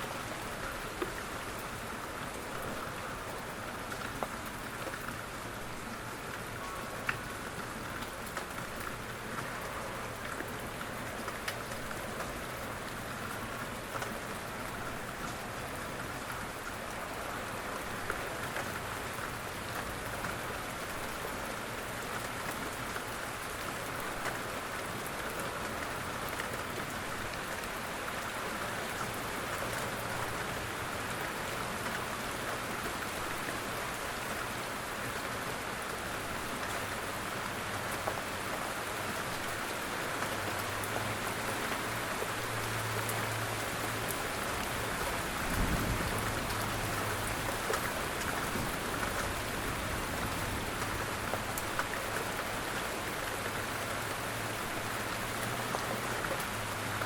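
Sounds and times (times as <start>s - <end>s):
steady rain falling: 0.0s - 57.0s
raindrops ticking: 5.8s - 33.2s.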